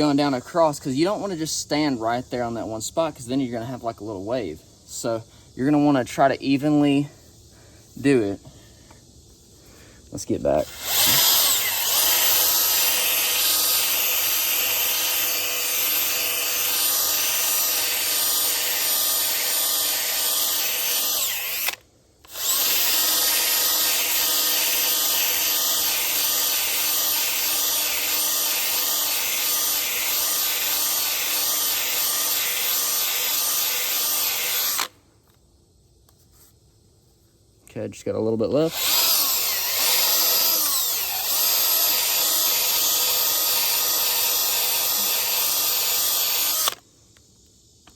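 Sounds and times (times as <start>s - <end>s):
power tool grinding wheel rim: 10.6s - 34.9s, 38.7s - 46.8s.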